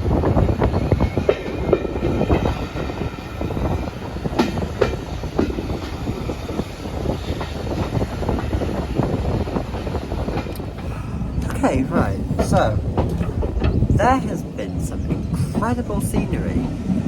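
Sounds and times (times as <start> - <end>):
steam train rumbling: 0.0 - 17.0
wheels clattering over rail joints: 0.0 - 17.0
sharp knocks and rattles: 12.3 - 14.0.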